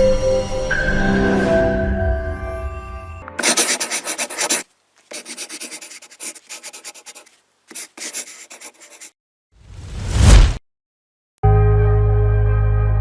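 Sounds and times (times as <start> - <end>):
rapid scratching and rubbing: 3.4 - 9.2.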